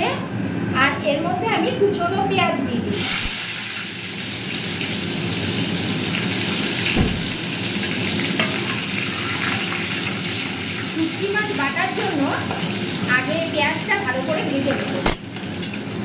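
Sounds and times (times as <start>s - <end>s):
onions sizzling in hot oil: 2.9s - 16.0s
knock: 7.0s - 7.3s.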